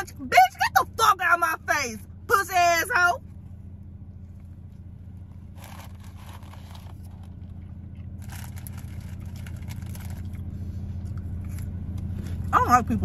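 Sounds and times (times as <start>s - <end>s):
car interior hum: 0.0s - 13.0s
chewing sandwich: 4.3s - 12.1s.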